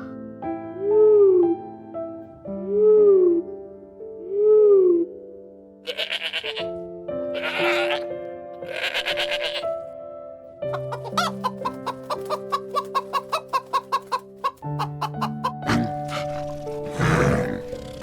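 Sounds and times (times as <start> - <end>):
soft background music: 0.0 - 18.0
chicken clucking: 10.7 - 16.8.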